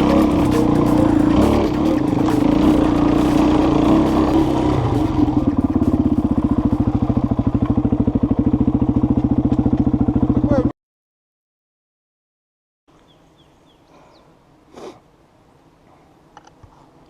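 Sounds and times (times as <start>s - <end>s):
motorcycle engine idling: 0.0s - 10.7s.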